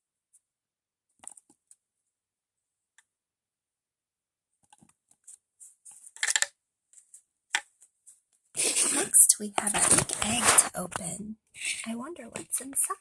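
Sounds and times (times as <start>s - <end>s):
plastic toys and packaging handled: 4.6s - 11.2s.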